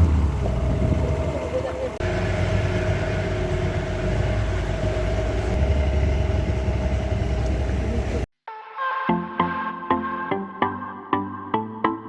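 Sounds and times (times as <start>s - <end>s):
boat engine droning: 0.0s - 8.3s
steady engine whine: 0.0s - 8.3s.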